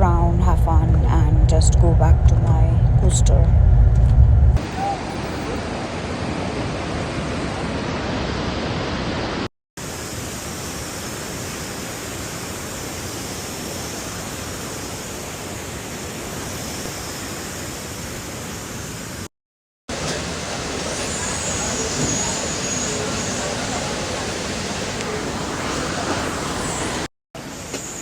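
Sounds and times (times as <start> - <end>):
waterfall rushing: 19.9 - 27.1.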